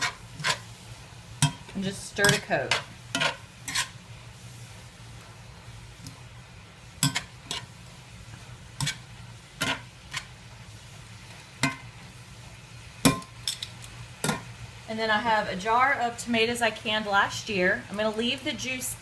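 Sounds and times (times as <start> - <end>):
utensil scraping a pan: 0.0 - 0.8, 1.4 - 4.6, 7.0 - 7.8, 8.8 - 10.4
faint sizzle: 0.0 - 19.0.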